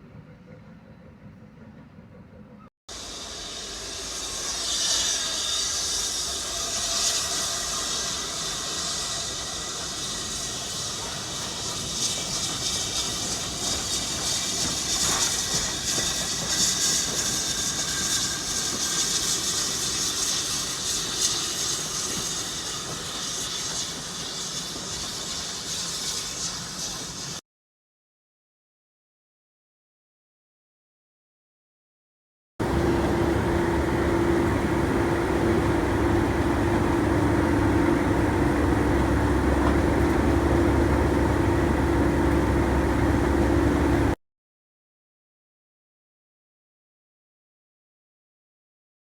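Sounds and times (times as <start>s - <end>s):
steam locomotive hissing: 2.9s - 27.4s, 32.6s - 44.2s.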